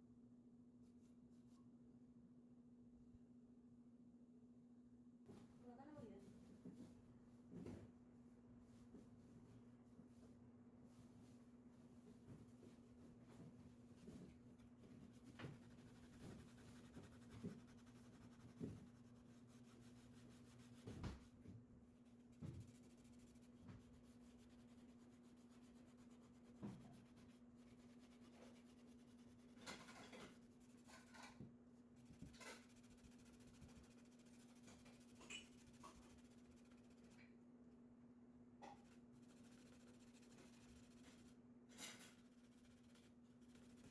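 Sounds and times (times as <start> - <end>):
scratching or rubbing sounds: 13.6 - 21.4, 22.0 - 37.3, 38.6 - 43.9.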